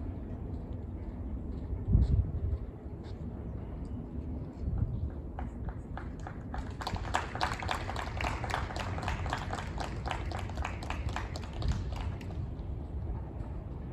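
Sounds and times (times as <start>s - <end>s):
low outdoor rumble: 0.0s - 13.9s
spectators clapping: 5.4s - 12.5s.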